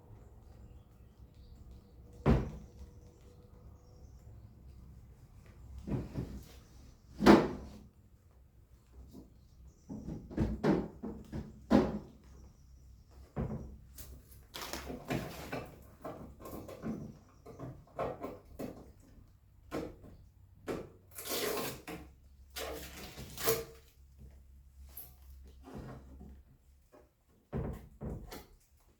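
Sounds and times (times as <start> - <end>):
knocks and clicks of fridge parts: 2.1 - 3.0, 7.1 - 7.8, 9.1 - 12.3, 13.2 - 13.9, 27.4 - 28.6.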